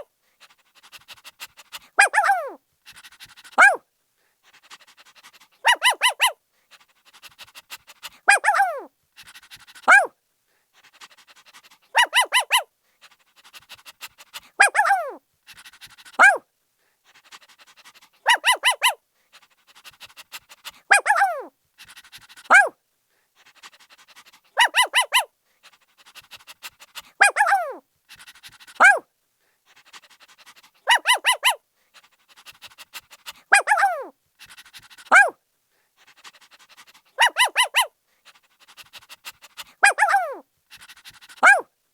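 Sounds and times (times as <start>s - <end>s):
puppy panting: 0.0s - 3.8s, 4.4s - 10.1s, 10.7s - 41.7s
puppy barking and yelping: 0.8s - 3.8s, 4.7s - 6.4s, 7.2s - 10.1s, 11.6s - 16.4s, 17.7s - 19.0s, 19.8s - 22.8s, 23.6s - 25.3s, 26.0s - 29.1s, 29.7s - 35.4s, 36.2s - 41.7s.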